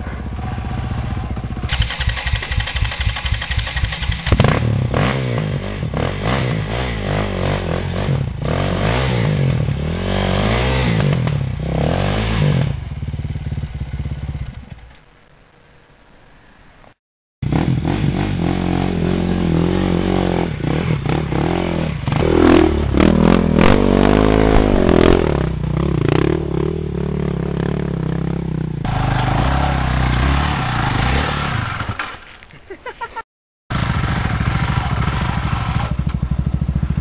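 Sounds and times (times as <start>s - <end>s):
dirt bike engines revving: 0.0s - 14.6s, 17.4s - 33.1s, 33.7s - 37.0s.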